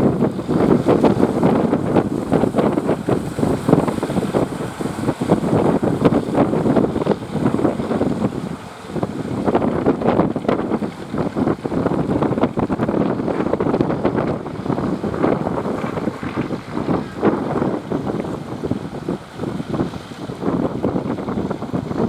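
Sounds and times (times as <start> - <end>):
sea surf rushing: 0.0 - 22.0
wind buffeting microphone: 0.0 - 22.0.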